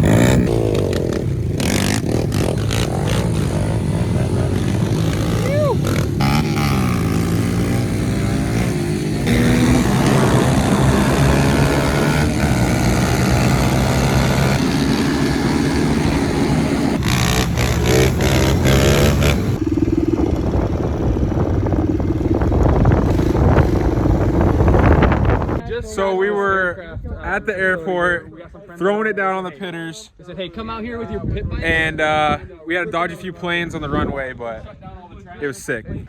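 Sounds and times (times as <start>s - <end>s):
pit bike engines revving: 0.0s - 25.6s
rushing noise: 0.0s - 25.6s.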